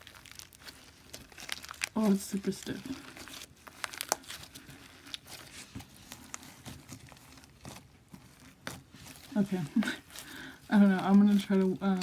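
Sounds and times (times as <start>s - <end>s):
beaded slime clicking and crackling: 0.0s - 2.0s, 2.7s - 9.3s.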